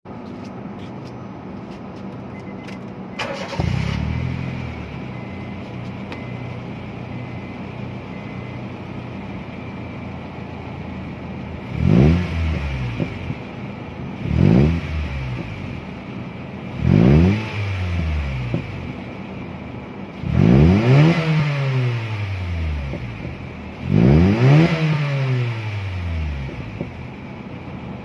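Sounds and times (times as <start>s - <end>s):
car engine starting and idling: 1.5s - 28.0s
car engine revving: 10.8s - 27.6s.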